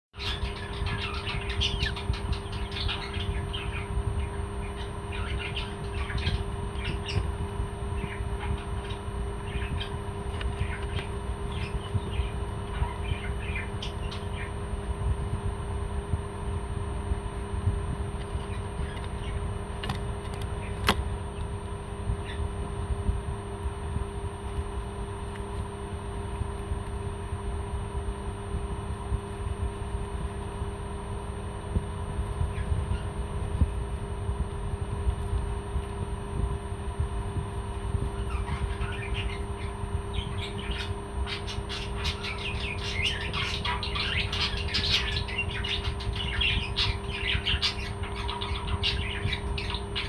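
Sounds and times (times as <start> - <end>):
parrots chirping and squawking: 0.2 - 7.3, 8.0 - 14.6, 18.4 - 19.5, 38.2 - 50.0
steady low hum: 0.2 - 50.0.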